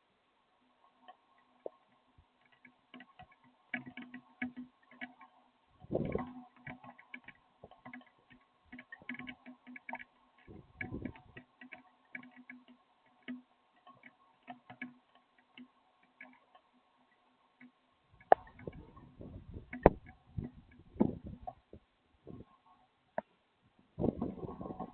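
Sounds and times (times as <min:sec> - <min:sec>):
faint steady hum: 0:00.0 - 0:24.9
raindrops dripping: 0:00.7 - 0:21.7
dull thumps: 0:18.2 - 0:21.6.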